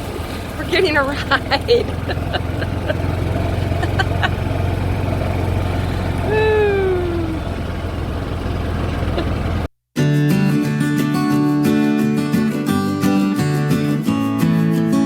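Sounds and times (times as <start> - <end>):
vehicle engine rumbling: 0.0 - 9.7
falling pitched tone: 1.9 - 7.7.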